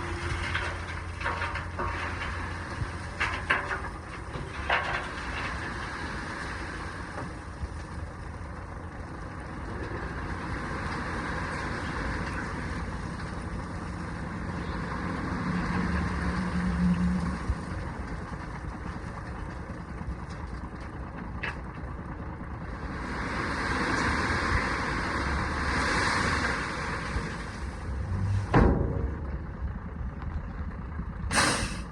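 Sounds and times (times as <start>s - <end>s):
gravel being dumped: 0.0s - 19.2s
truck engine running: 0.0s - 31.9s.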